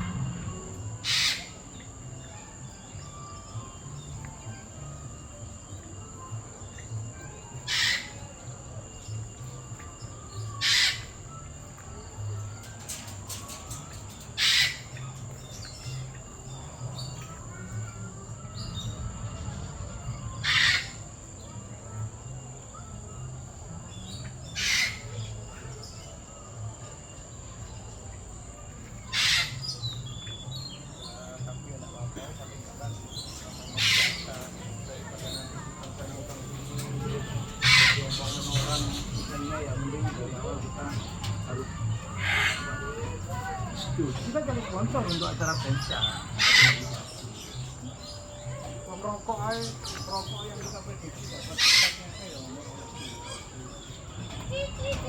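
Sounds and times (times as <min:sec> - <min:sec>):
loud harsh bird screeches: 0:00.0 - 0:01.8, 0:07.7 - 0:08.2, 0:10.6 - 0:11.2, 0:14.4 - 0:15.0, 0:20.3 - 0:21.1, 0:24.6 - 0:25.1, 0:29.1 - 0:29.9, 0:33.6 - 0:34.5, 0:37.6 - 0:39.4, 0:42.2 - 0:42.9, 0:46.3 - 0:47.0, 0:51.6 - 0:52.1
faint bird chirps: 0:00.0 - 0:55.0.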